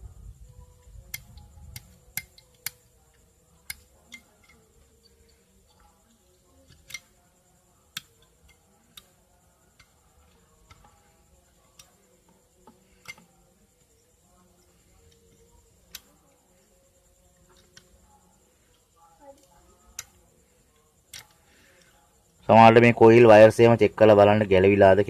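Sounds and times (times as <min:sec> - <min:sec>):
clicks and taps of metal parts: 0:01.1 - 0:06.0, 0:06.6 - 0:13.9, 0:14.6 - 0:16.4, 0:19.4 - 0:20.2, 0:21.1 - 0:22.0.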